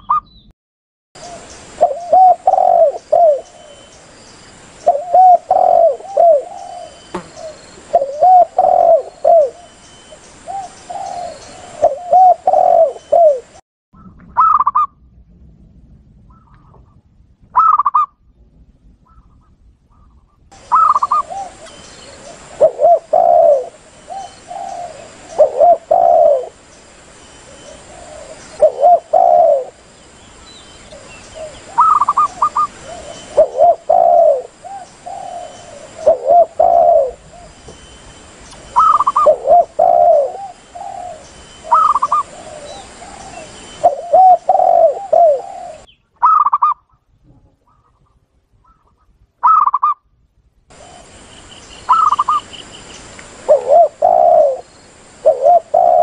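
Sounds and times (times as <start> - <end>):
doves cooing: 1.2 - 3.9, 4.8 - 9.7, 10.4 - 13.6, 20.6 - 26.6, 27.4 - 29.9, 30.5 - 37.8, 38.6 - 48.0, 50.7 - 52.8, 53.4 - 56.0
faint high hiss: 1.2 - 13.6, 20.5 - 46.0, 50.2 - 56.0.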